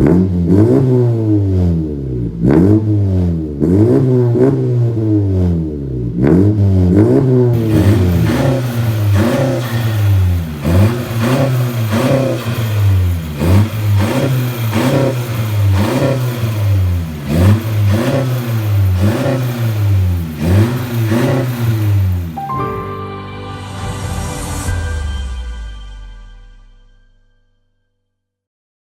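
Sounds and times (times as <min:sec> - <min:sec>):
car engine revving: 0:00.0 - 0:22.4.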